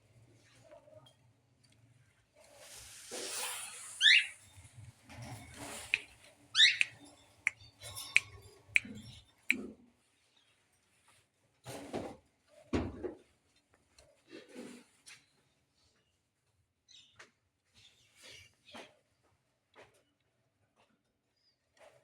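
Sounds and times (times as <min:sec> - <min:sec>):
parrot hissing: 0:03.2 - 0:04.4, 0:06.6 - 0:06.9
parrot squawking harshly: 0:04.0 - 0:04.3, 0:06.6 - 0:06.9
parrot clicking: 0:06.6 - 0:07.0.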